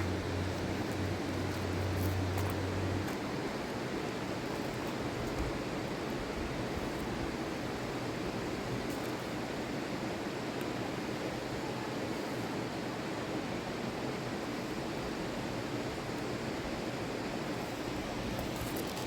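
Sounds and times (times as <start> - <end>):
fast-flowing river water: 0.0 - 19.0.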